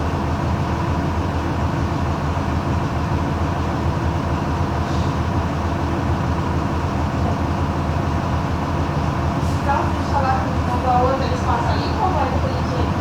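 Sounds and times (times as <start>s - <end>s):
bus diesel engine drone: 0.0s - 13.0s.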